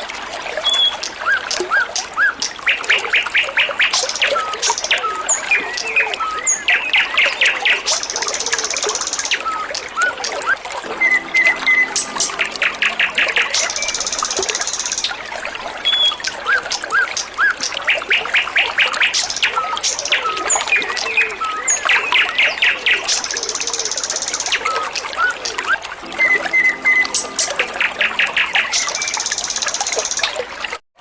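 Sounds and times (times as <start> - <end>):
running water trickling: 0.0 - 30.8
songbird singing: 2.2 - 30.4
buzzy bird trills: 11.0 - 16.3, 26.0 - 30.4.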